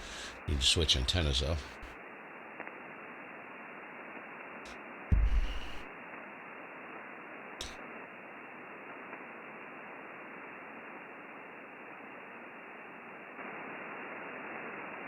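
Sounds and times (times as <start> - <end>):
radio receiver hiss: 0.0 - 2.0, 5.1 - 5.9, 7.6 - 7.8
thump: 5.1 - 5.8.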